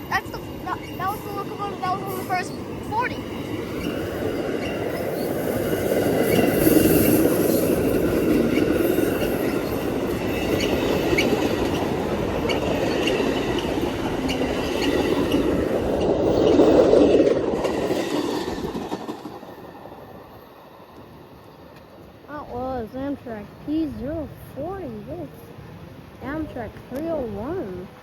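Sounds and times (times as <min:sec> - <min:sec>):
train wheels clattering over rails: 0:00.0 - 0:22.8.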